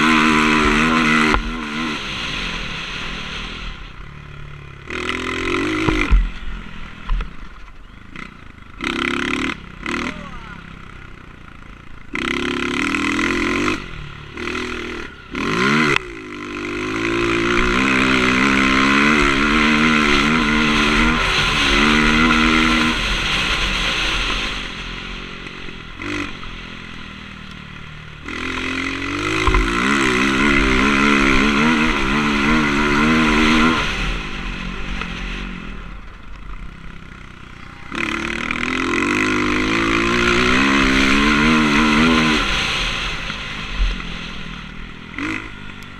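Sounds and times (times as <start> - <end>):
motocross bike engine revving: 0.0 - 45.9.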